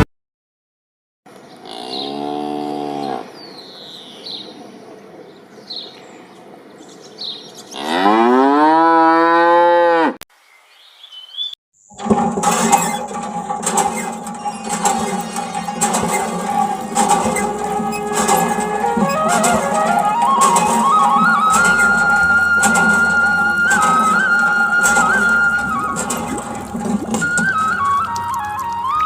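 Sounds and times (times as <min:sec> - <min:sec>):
cow mooing: 0:07.8 - 0:10.2
bird chirps: 0:10.5 - 0:11.6
music: 0:15.7 - 0:29.0.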